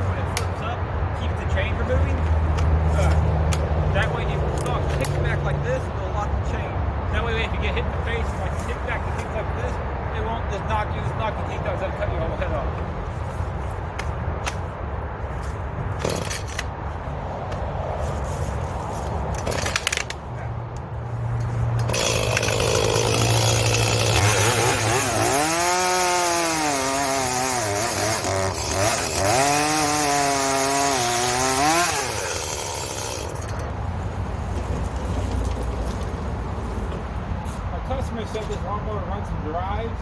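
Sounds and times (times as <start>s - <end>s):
chainsaw revving and cutting wood: 21.8s - 33.6s.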